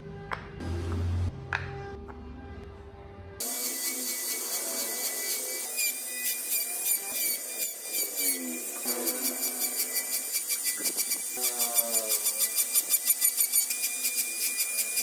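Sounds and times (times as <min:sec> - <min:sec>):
power tool whining on wood: 0:03.4 - 0:15.0.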